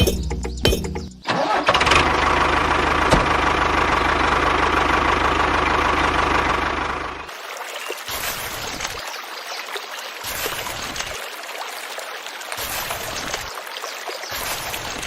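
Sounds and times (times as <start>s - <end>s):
engine running: 0.0s - 7.3s.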